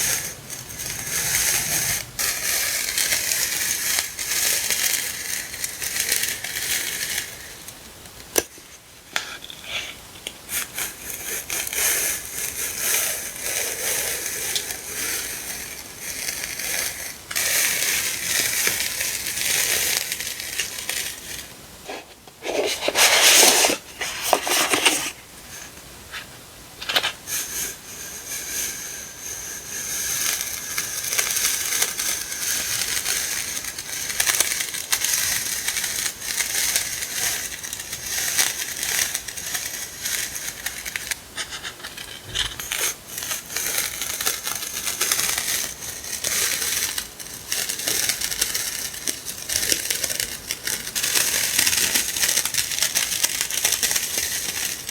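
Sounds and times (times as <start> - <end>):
packaging crinkling and rustling: 13.2 - 25.3, 26.2 - 27.2, 30.3 - 54.9.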